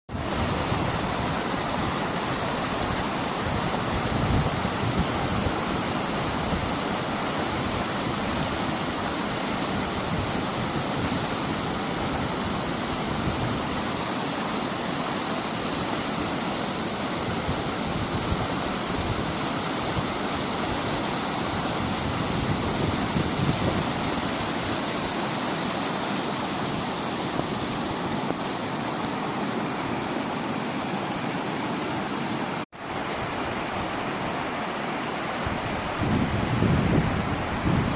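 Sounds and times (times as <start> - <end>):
flowing water rushing: 0.1 - 37.9.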